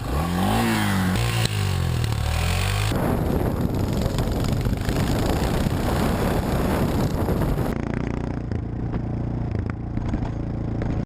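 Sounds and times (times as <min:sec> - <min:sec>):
motorcycle engine running: 0:00.0 - 0:11.0
wind buffeting microphone: 0:02.8 - 0:07.8.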